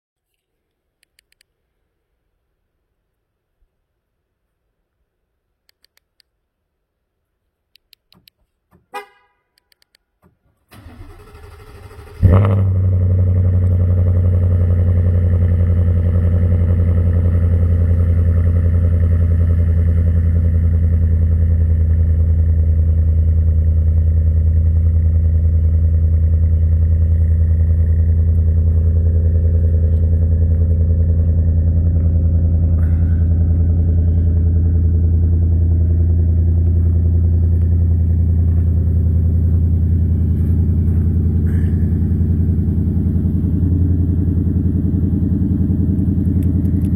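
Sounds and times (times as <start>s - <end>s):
engine idling: 10.7s - 46.9s.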